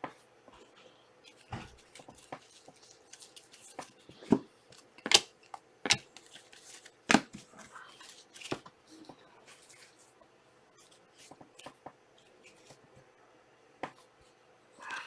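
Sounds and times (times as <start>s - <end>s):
cards rustling: 1.2s - 8.7s
cards tapping on a table: 7.1s - 7.4s.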